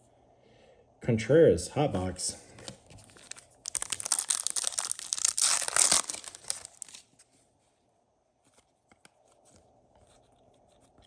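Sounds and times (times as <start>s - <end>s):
wrapper tearing and crinkling: 3.0s - 7.1s.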